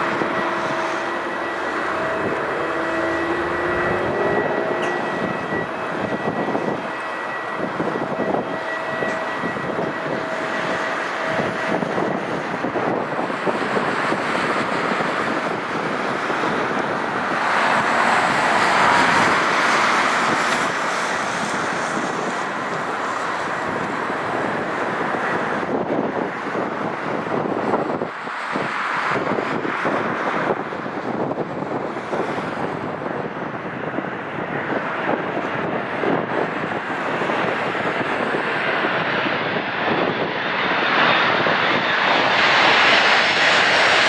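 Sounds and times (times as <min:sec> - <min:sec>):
thin whine: 0:00.0 - 0:14.5, 0:15.6 - 0:25.9
jet engines running: 0:00.0 - 0:44.0
wind on microphone: 0:00.0 - 0:44.0.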